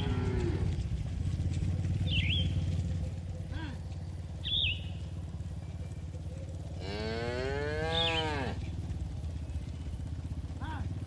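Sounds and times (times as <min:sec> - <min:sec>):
cow mooing: 0:00.0 - 0:00.8, 0:06.8 - 0:08.7
steady low hum: 0:00.0 - 0:11.0.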